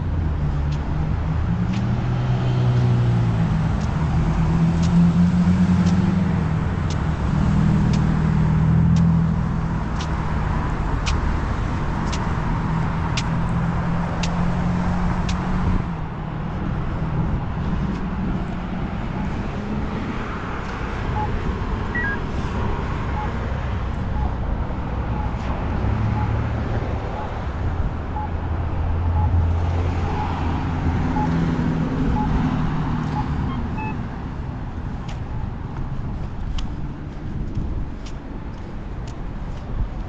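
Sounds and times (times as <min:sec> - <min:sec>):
road noise: 0:00.0 - 0:40.0
vehicle engine humming: 0:00.0 - 0:40.0
sharp ticks: 0:03.7 - 0:04.1, 0:04.8 - 0:05.0, 0:05.8 - 0:06.2, 0:06.8 - 0:07.1, 0:07.8 - 0:08.2, 0:08.8 - 0:09.2, 0:09.9 - 0:12.4, 0:13.0 - 0:14.4, 0:15.2 - 0:15.5, 0:31.1 - 0:40.0.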